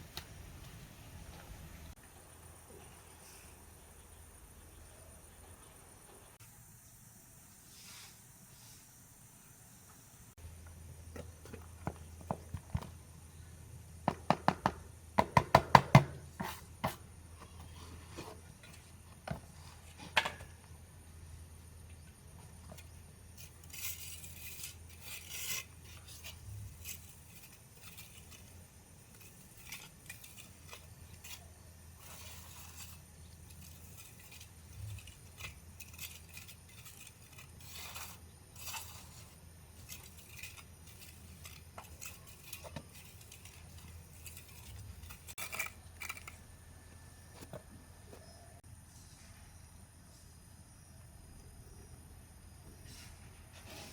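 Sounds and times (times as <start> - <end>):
faint scraping and clinking: 21.8 - 50.9.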